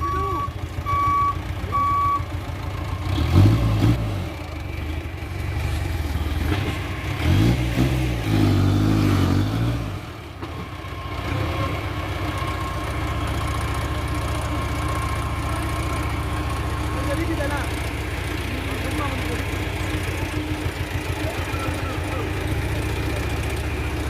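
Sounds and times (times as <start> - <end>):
diesel engine revving and idling: 0.0 - 24.0.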